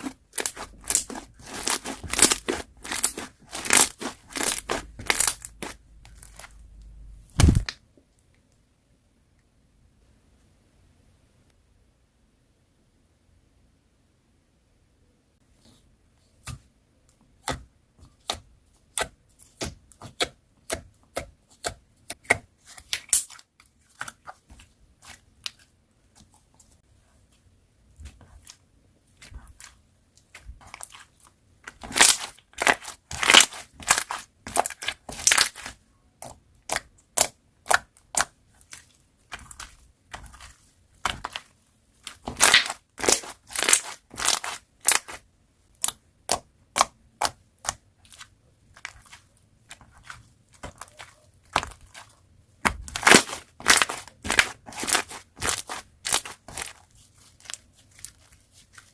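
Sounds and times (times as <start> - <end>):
slime crackling and popping: 0.0 - 6.6, 22.1 - 24.2, 29.2 - 58.9.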